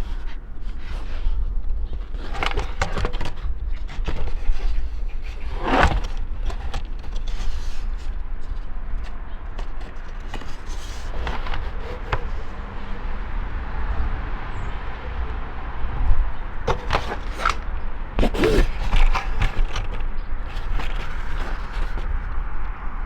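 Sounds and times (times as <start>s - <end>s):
plastic trim knocks and scrapes: 0.1s - 12.6s, 16.7s - 22.3s.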